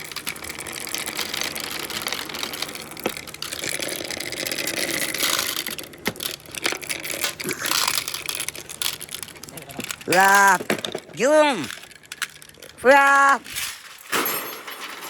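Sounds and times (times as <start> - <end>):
marbles rolling on a track: 0.0 - 15.0
marbles clicking: 0.1 - 13.6.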